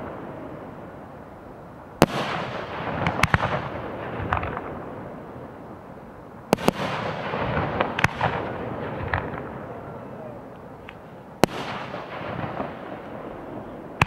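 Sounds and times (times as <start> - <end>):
small firework pops: 2.0 - 4.7, 6.5 - 8.4, 9.0 - 9.5, 10.5 - 12.7
rolling echo: 2.0 - 5.7, 6.5 - 14.0.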